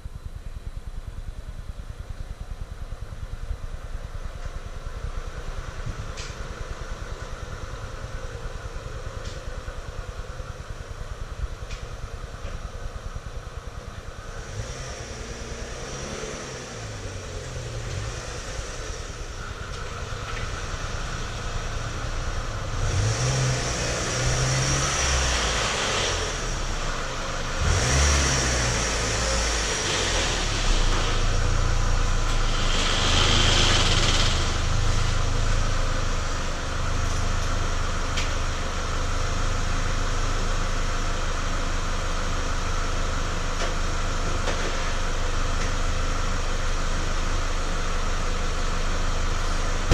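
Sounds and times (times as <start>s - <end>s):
petrol engine clattering: 30.4s - 39.0s.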